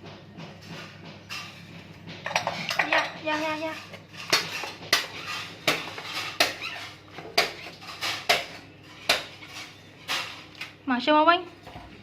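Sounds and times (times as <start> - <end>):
sharp clinks and knocks on dishes: 1.3 - 8.7.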